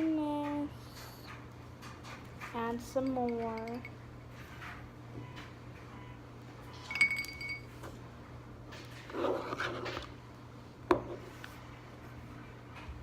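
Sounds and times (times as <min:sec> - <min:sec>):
metal utensil clinking on bowl: 0:02.9 - 0:04.0.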